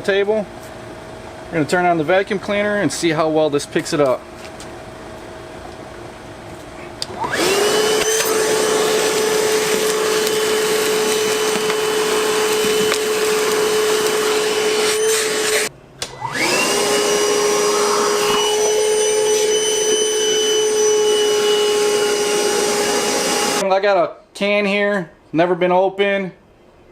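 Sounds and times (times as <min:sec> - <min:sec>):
vacuum motor whining: 0:07.0 - 0:23.6
vacuum sucking up wood chips: 0:07.0 - 0:23.6.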